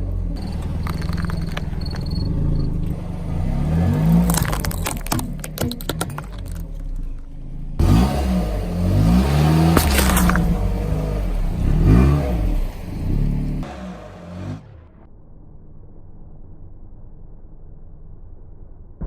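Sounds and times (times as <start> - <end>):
car engine revving: 0.0 - 15.1
objects cracking and crunching: 3.9 - 7.0, 9.7 - 10.6.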